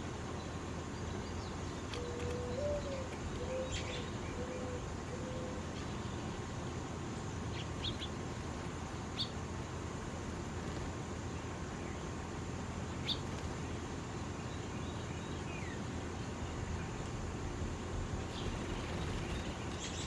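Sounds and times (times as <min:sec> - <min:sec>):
small birds chirping: 0:00.0 - 0:17.2, 0:18.2 - 0:20.0
steady background hum: 0:00.0 - 0:20.0
dove cooing: 0:02.0 - 0:05.8.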